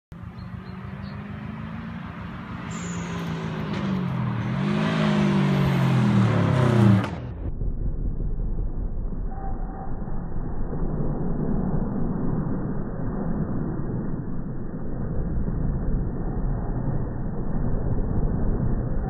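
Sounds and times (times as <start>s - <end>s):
car engine revving: 0.2s - 8.4s
slowed-down low rumble: 2.5s - 19.0s.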